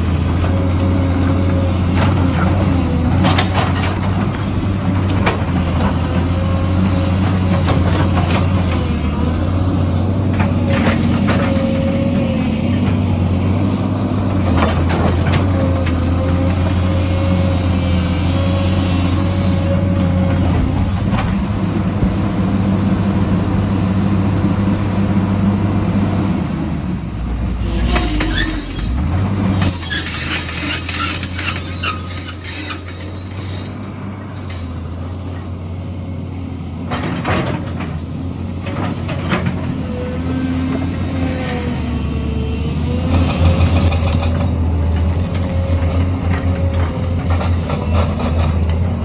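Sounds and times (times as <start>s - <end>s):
excavator diesel engine running: 0.0s - 49.0s
metallic clanks and scraping: 27.6s - 33.8s.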